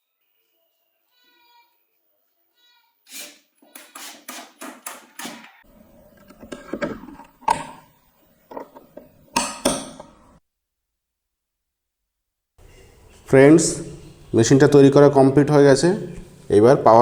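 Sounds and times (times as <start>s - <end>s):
handling of parts: 4.6s - 10.4s.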